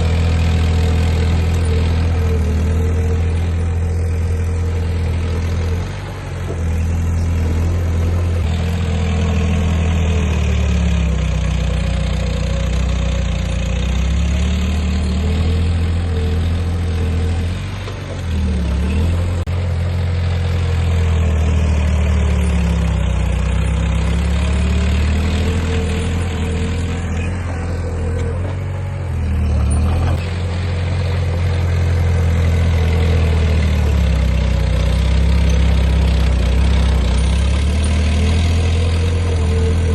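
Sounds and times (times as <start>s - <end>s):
heavy diesel engine under load: 0.0s - 39.9s.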